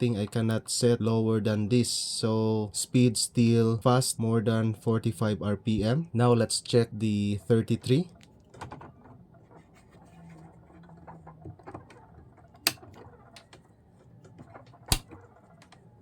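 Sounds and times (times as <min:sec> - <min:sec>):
turntable switch clicks: 0:12.6 - 0:13.5, 0:14.9 - 0:15.2
turntable handling clicks: 0:12.6 - 0:13.6, 0:14.8 - 0:15.8.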